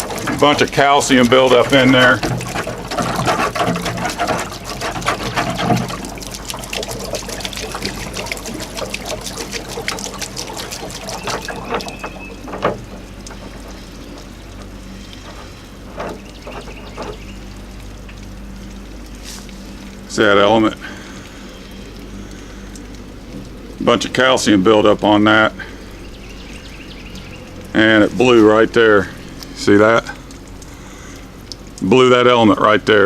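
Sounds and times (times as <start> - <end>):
knocks: 0.0 - 13.7
water pouring and splashing: 0.0 - 33.0.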